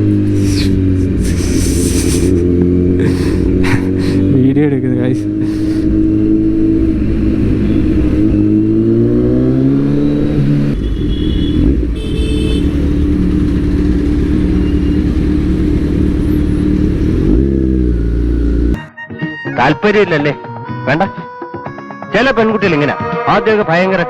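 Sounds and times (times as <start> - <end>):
motorcycle engine accelerating: 0.0 - 18.8.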